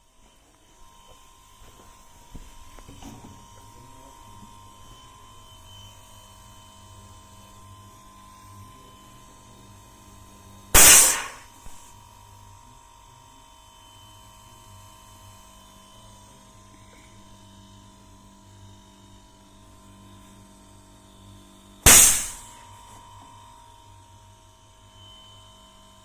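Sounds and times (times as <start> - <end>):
loud sharp bang: 10.8 - 11.8, 21.9 - 22.5
steady electrical hum: 10.8 - 11.9, 21.9 - 22.6.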